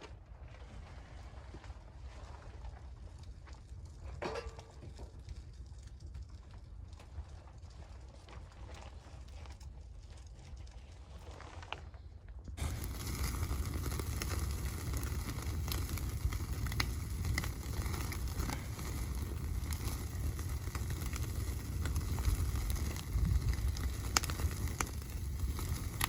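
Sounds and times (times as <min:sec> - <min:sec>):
fire crackling and popping: 0:02.8 - 0:26.0.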